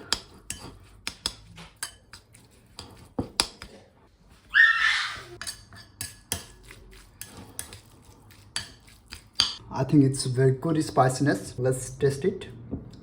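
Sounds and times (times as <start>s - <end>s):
spoon clinking and scraping bowl: 0.0s - 3.7s, 5.3s - 9.6s.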